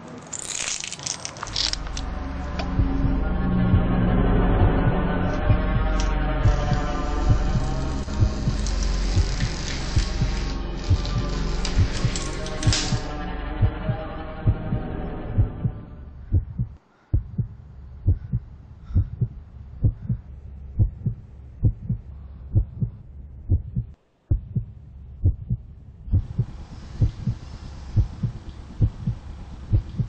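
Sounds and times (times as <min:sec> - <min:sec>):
sustained music chord: 0:01.6 - 0:16.2
heartbeat double thumps: 0:02.8 - 0:27.4, 0:28.0 - 0:30.0.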